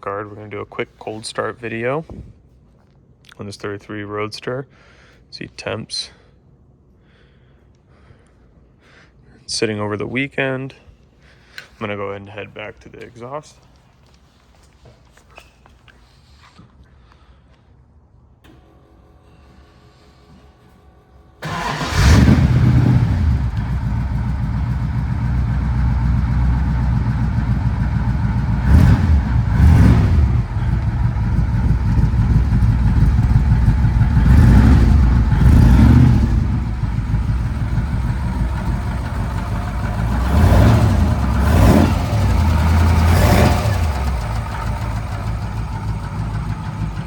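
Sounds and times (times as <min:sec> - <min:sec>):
car engine starting and idling: 0:21.4 - 0:47.0
engine throttle blips: 0:21.4 - 0:47.0.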